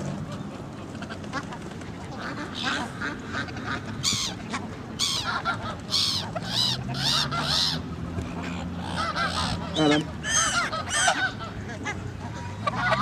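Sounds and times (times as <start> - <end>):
waterbirds harsh high calls: 2.1 - 13.0
distant bird calling: 4.0 - 13.0.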